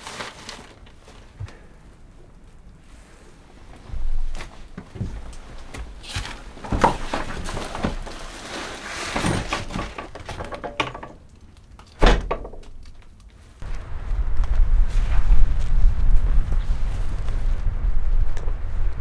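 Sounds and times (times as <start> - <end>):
knocks and clattering thuds: 9.2 - 11.2, 12.0 - 12.8.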